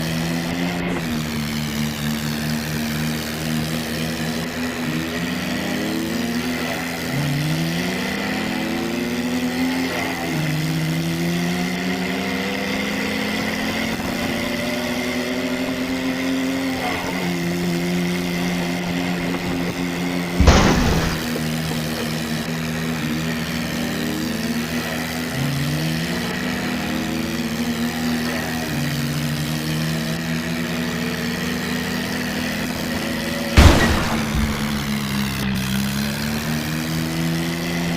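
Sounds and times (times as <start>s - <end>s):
toy tractor engine sound revving: 0.0s - 37.9s
sharp knock: 20.4s - 21.4s.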